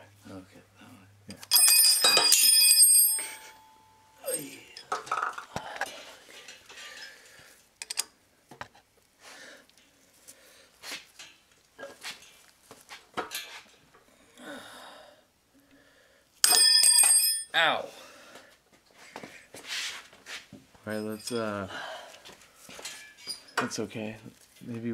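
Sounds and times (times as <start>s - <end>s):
hand tools clinking on metal: 1.4s - 5.5s, 6.3s - 7.2s, 16.4s - 17.5s, 20.9s - 21.6s, 22.7s - 23.8s.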